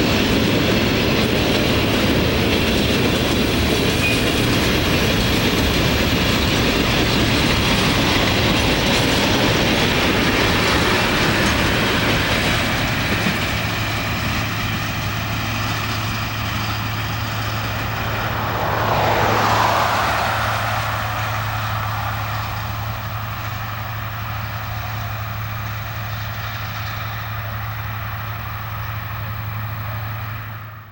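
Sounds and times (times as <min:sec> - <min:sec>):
wheels clattering over rail joints: 0:00.0 - 0:19.3
freight train rolling past: 0:00.0 - 0:30.9.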